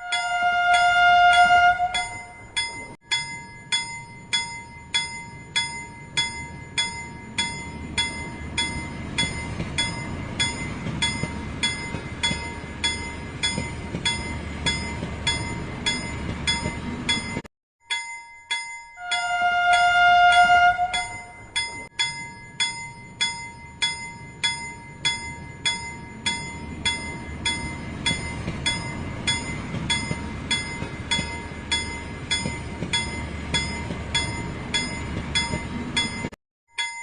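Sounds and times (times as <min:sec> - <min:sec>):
toy train whistle tone: 0:00.0 - 0:02.4, 0:19.0 - 0:21.4
bell dinging: 0:00.0 - 0:37.0.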